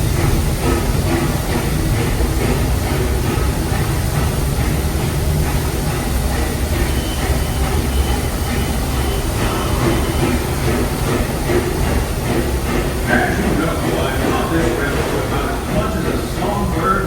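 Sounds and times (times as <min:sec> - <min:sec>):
train rolling rumble: 0:00.0 - 0:17.0
wheels clattering on track: 0:00.0 - 0:17.0.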